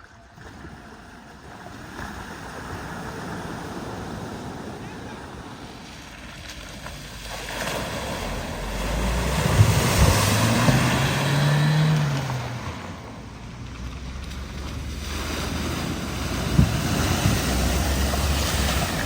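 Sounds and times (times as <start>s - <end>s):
water splashing: 0.0s - 19.0s
vehicle engine: 4.8s - 19.0s
wind on microphone: 8.2s - 13.2s.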